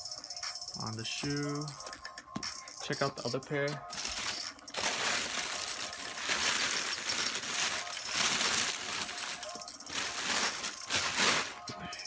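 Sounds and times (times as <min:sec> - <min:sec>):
packaging rustling and crinkling: 0:03.7 - 0:12.0.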